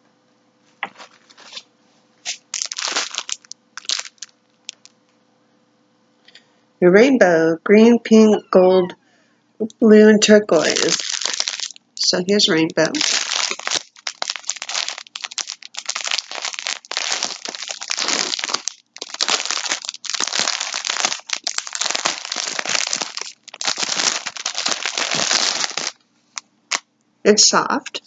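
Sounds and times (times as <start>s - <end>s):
plastic wrapping crinkling: 0.8s - 5.0s, 10.5s - 26.0s.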